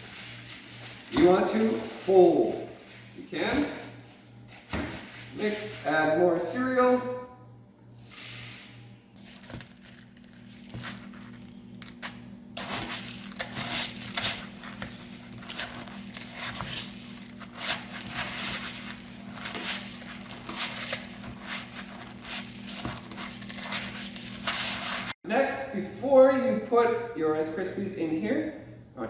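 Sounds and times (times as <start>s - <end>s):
puffed cereal crackling: 9.2s - 25.1s
spatula scraping bowl: 12.6s - 25.2s.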